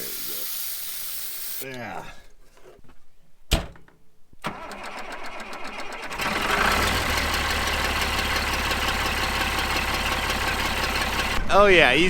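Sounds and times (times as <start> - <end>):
starter cranking engine: 4.4 - 11.4
tractor engine running: 4.5 - 11.5.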